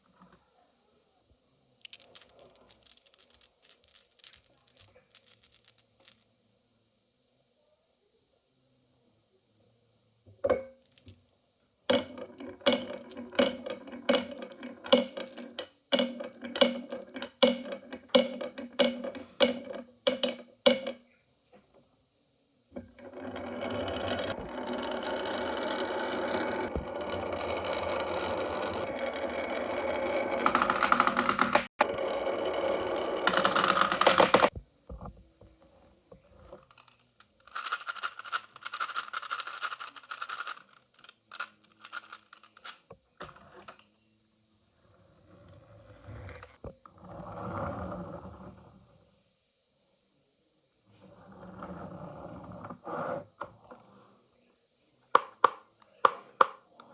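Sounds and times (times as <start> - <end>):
marbles clacking: 1.8 - 6.2, 11.9 - 21.0, 22.8 - 34.5, 36.7 - 42.8
marbles rolling rumble: 1.8 - 6.2, 11.9 - 21.0, 22.8 - 34.5, 36.6 - 42.8.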